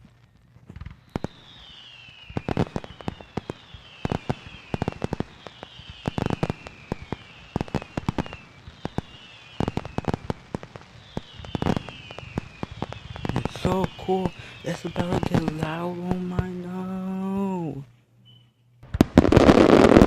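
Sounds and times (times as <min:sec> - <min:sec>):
firework bangs and cracks: 0:00.0 - 0:17.6, 0:18.8 - 0:20.0
firework whistles: 0:00.7 - 0:20.0.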